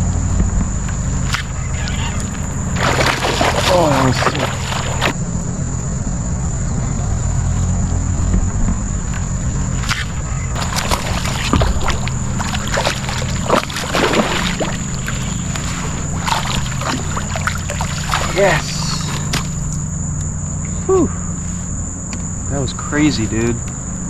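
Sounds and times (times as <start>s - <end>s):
low outdoor rumble: 0.0s - 24.0s
thin high whine: 0.0s - 24.0s
water splashes: 1.3s - 5.2s, 9.8s - 19.8s.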